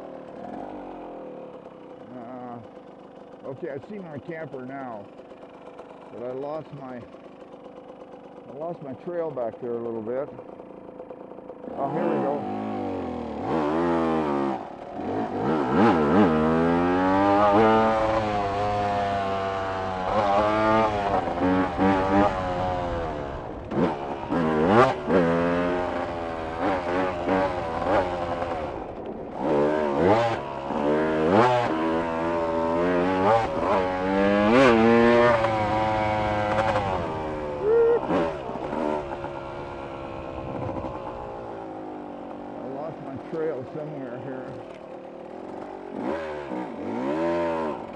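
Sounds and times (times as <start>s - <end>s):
engine revving and shifting gears: 11.7s - 41.9s, 45.4s - 47.9s.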